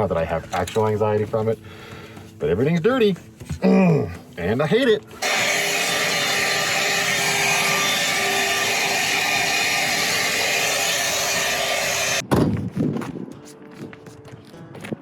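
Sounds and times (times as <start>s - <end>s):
vacuum cleaner running: 5.2s - 12.2s.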